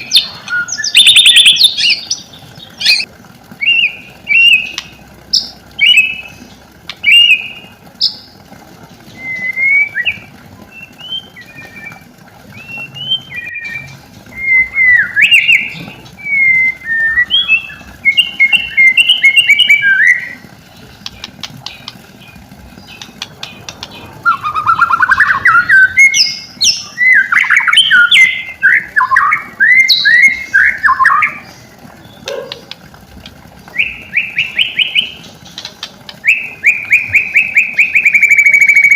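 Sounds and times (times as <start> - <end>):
bird singing whistled phrases: 0.1 - 2.0, 9.1 - 20.4, 24.2 - 31.5, 33.7 - 35.2, 36.2 - 38.9.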